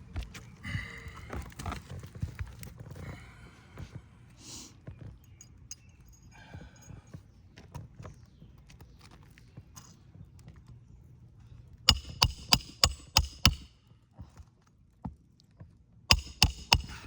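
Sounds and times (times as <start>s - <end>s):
hammer striking roofing nail: 11.9s - 13.7s, 16.1s - 17.0s.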